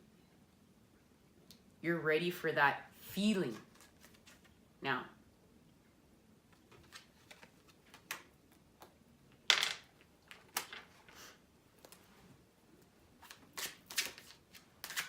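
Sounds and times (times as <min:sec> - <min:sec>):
cards being shuffled: 0:03.5 - 0:04.6, 0:06.5 - 0:09.0, 0:13.2 - 0:15.0.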